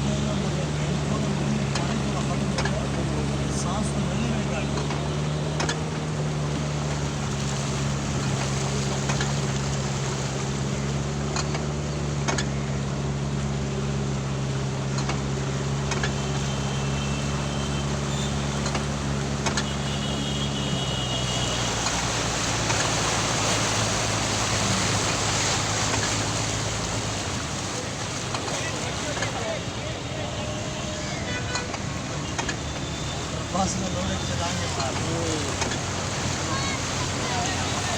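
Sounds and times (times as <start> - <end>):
water washing against car: 0.0 - 37.9
car engine running: 21.3 - 30.4, 31.0 - 37.9.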